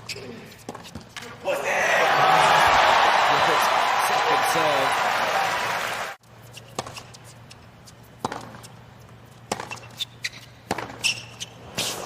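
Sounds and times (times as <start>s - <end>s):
shoe squeak: 0.0s - 1.1s, 6.4s - 8.8s, 9.5s - 12.0s
racket hitting tennis ball: 8.2s - 8.6s, 9.5s - 10.0s, 10.6s - 11.2s
ball bounces and footwork: 8.2s - 11.5s.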